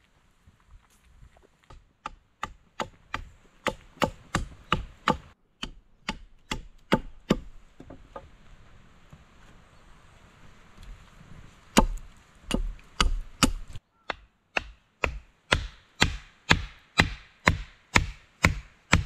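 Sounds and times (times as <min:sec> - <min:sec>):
hatchet chopping wood: 0:01.7 - 0:08.2, 0:11.7 - 0:19.0.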